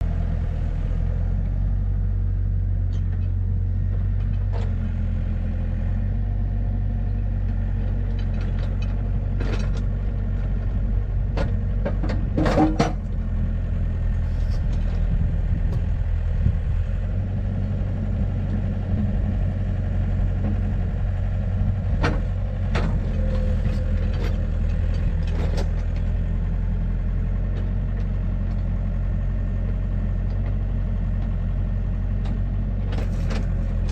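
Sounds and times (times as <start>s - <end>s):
engine idling: 0.0s - 33.9s
knocks and clanks: 11.4s - 13.0s.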